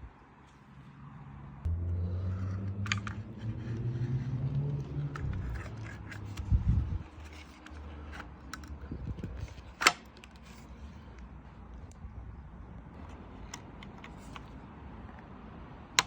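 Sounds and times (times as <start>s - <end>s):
small handling clicks and scrapes: 2.3s - 12.0s, 13.0s - 15.3s.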